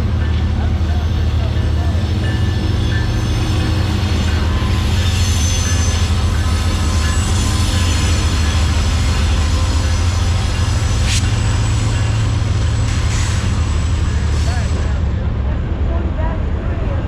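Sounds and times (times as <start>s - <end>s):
freight train cars rumbling: 0.0s - 17.0s
wheel squeal: 2.4s - 8.6s.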